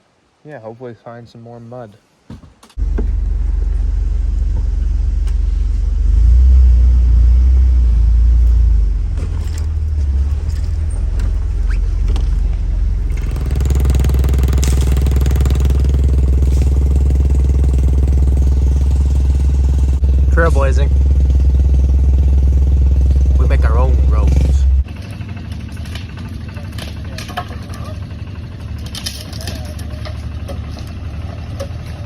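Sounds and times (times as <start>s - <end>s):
vehicle engine rumble: 2.8s - 32.0s
mechanical noise: 8.1s - 26.3s.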